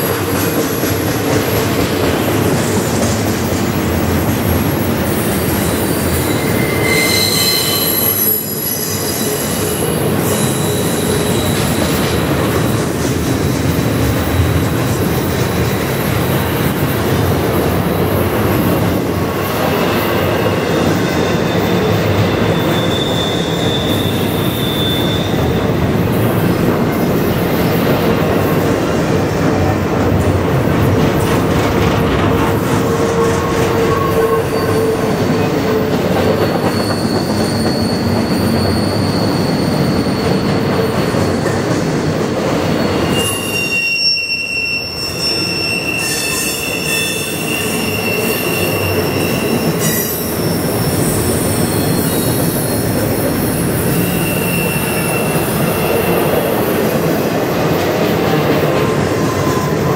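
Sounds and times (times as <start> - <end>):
steel wheels rumbling on rail: 0.0 - 59.9
high-pitched wheel squeal: 5.2 - 12.2, 20.0 - 25.6, 33.0 - 41.5, 42.6 - 56.8.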